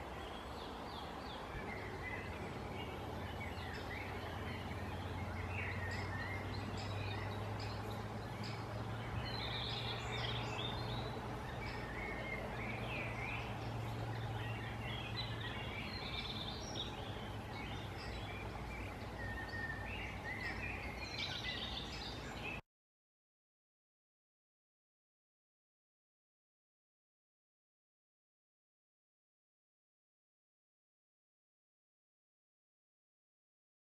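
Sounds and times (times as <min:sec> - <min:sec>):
birds chirping and calling: 0:00.0 - 0:22.6.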